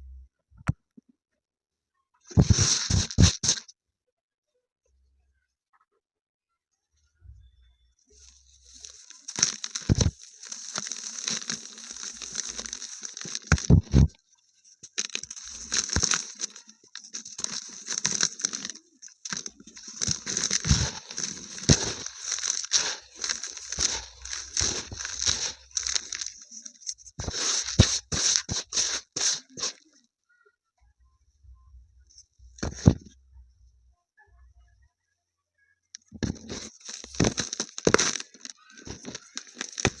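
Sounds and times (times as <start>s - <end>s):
dried paste crunching: 2.3s - 3.6s, 8.2s - 30.0s, 32.6s - 33.0s, 36.0s - 40.0s
sharp cracks: 36.5s - 40.0s.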